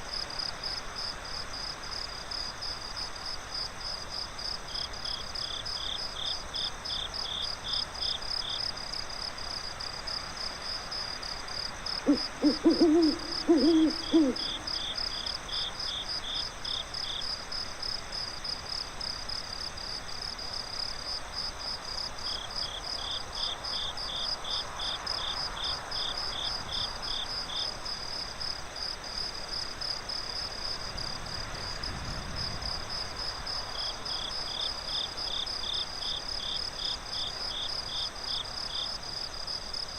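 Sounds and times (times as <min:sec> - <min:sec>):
crickets chirping: 0:00.0 - 0:39.9
lower insect chirping: 0:10.1 - 0:18.0, 0:32.6 - 0:39.9
owl hooting: 0:12.0 - 0:15.0.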